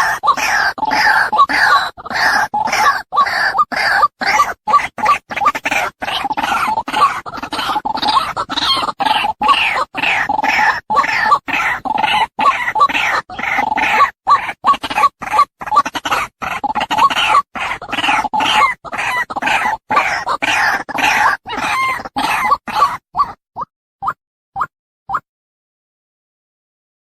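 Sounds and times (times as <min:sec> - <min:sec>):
waterhen calling: 0:05.4 - 0:23.4.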